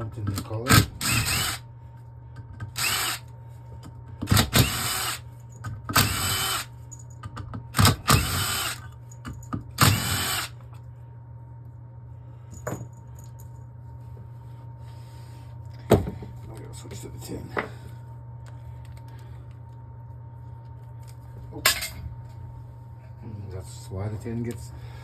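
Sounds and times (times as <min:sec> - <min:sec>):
cordless power driver whirring: 0:00.9 - 0:01.6, 0:02.7 - 0:03.3, 0:04.3 - 0:05.2, 0:05.9 - 0:06.7, 0:07.8 - 0:08.8, 0:09.8 - 0:10.6.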